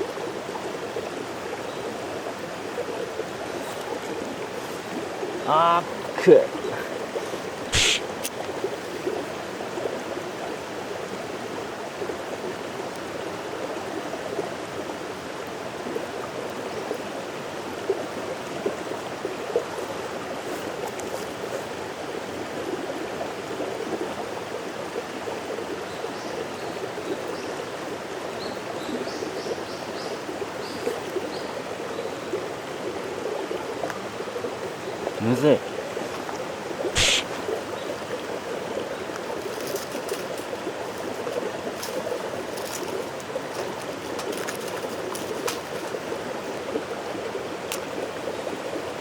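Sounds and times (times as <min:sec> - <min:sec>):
stream water rushing: 0:00.0 - 0:49.0
sharp click: 0:07.7 - 0:08.4, 0:37.0 - 0:37.3.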